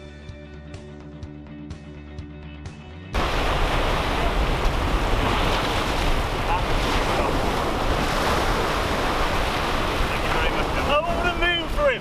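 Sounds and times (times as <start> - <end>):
wind rumbling on microphone: 3.2 - 11.8
waves breaking over rock: 3.2 - 12.0.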